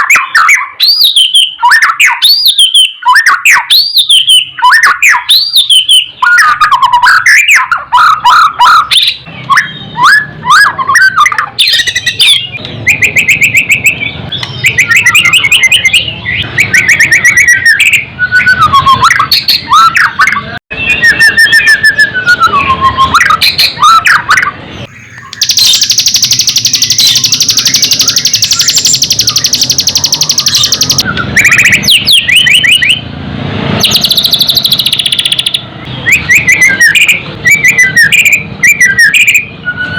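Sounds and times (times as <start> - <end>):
songbird whistling phrases: 0.0 - 33.0, 33.8 - 39.9
harsh high buzzing rattle: 24.9 - 31.0.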